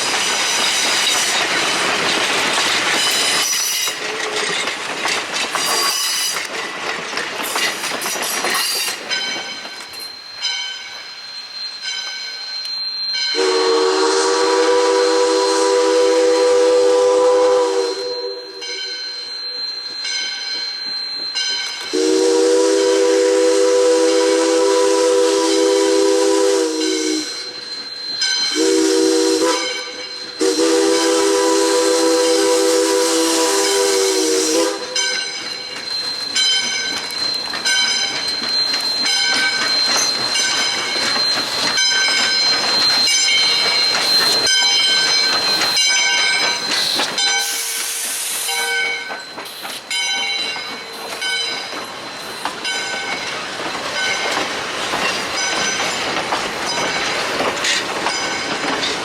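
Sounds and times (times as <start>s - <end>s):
steam hissing: 0.0s - 20.0s, 20.6s - 59.0s
steam locomotive chime whistle: 8.5s - 54.5s
steady high squeal: 35.2s - 53.4s.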